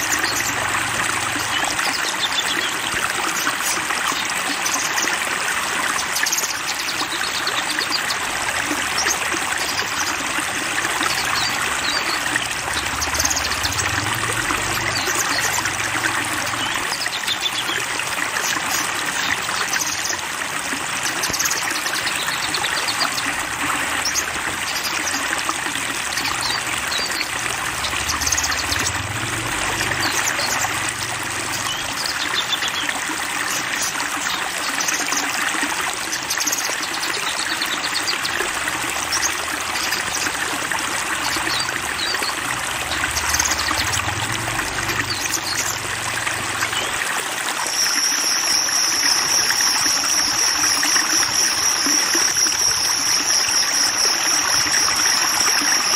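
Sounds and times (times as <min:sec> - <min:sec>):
flowing water: 0:00.0 - 0:55.9
bird chirps: 0:47.6 - 0:55.9
high-pitched trill: 0:47.6 - 0:55.9.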